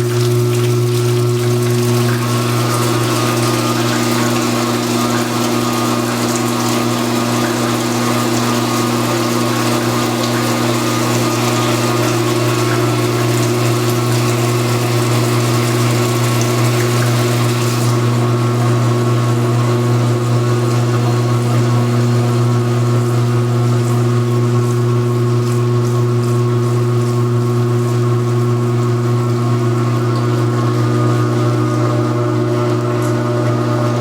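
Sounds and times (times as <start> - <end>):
water rushing: 0.0 - 18.6
washing machine motor hum: 0.0 - 34.0.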